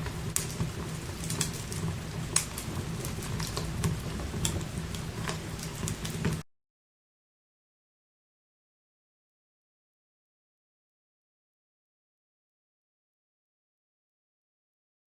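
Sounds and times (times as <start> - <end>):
low steady fire rumble: 0.0 - 6.4
wood fire crackling: 0.0 - 6.4
sharp pops and snaps: 0.3 - 6.4.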